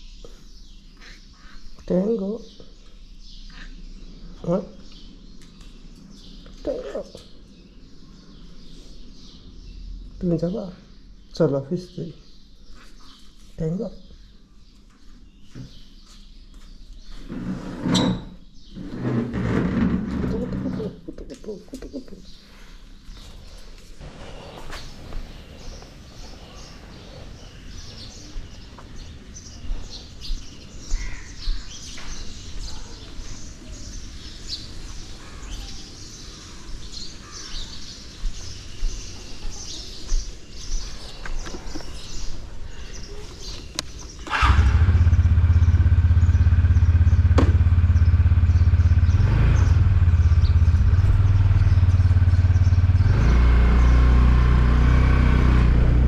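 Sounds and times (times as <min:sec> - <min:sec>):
birds chirping: 0:00.0 - 0:56.0
motorcycle engine running: 0:44.3 - 0:56.0.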